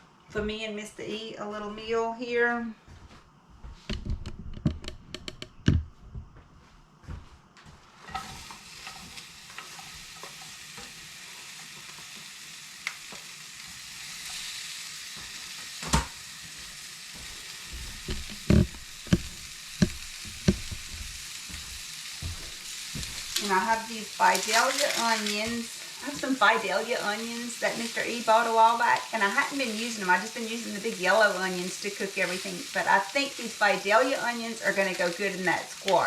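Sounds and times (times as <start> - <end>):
clicks and knocks: 3.9 - 5.9
squash sizzling in hot oil: 8.1 - 36.0
utensil knocking against pan: 18.0 - 20.9.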